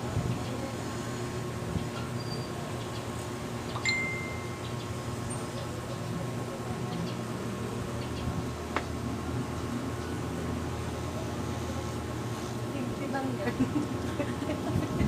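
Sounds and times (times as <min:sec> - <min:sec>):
short high-pitched tone: 0:03.8 - 0:04.7.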